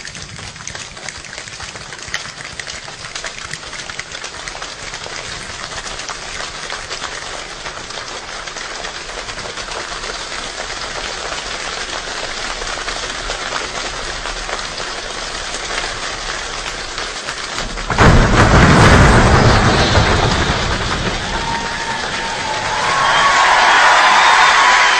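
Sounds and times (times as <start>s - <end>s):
steady rainfall patter: 0.0s - 24.9s
loud rush with deep rumble: 17.6s - 23.1s.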